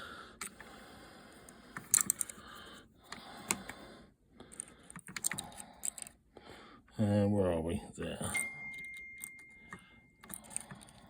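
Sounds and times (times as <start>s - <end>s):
small parts clicking and rattling: 1.7s - 3.8s, 4.4s - 6.2s, 8.4s - 11.0s.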